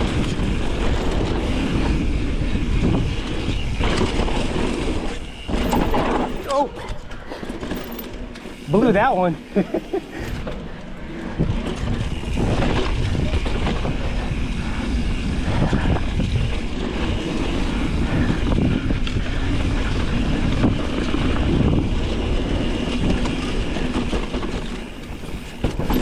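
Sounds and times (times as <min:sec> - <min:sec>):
chain and frame rattling: 0:05.5 - 0:06.8, 0:07.5 - 0:08.4, 0:24.9 - 0:26.0
bike tyres crunching on dirt: 0:16.4 - 0:26.0.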